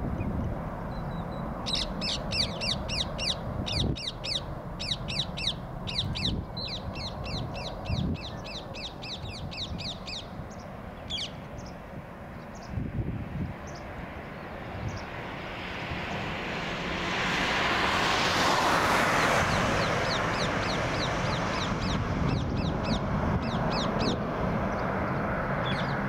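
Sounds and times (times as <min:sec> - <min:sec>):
jet engines roaring on takeoff: 0:00.0 - 0:26.0
bird chirping: 0:00.9 - 0:11.8, 0:19.2 - 0:26.0.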